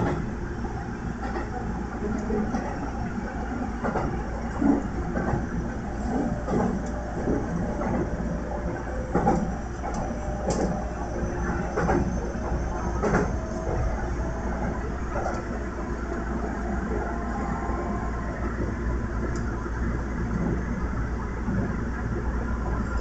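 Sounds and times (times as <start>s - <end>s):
electric train rolling rumble: 0.0s - 23.0s
wheels clacking on rails: 1.1s - 17.1s.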